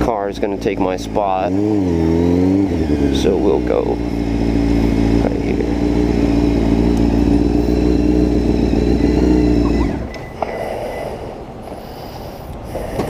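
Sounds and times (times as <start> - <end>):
motorcycle engine with loud exhaust: 0.0 - 10.4.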